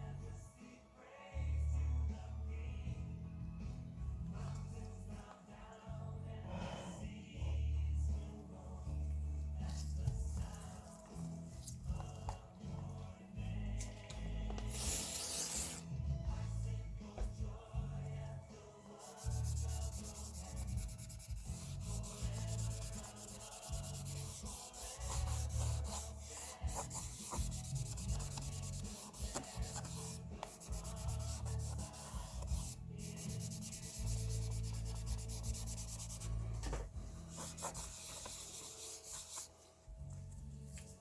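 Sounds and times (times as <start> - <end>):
hands rubbing and scraping object: 14.6 - 15.9, 19.0 - 36.5, 37.3 - 39.5.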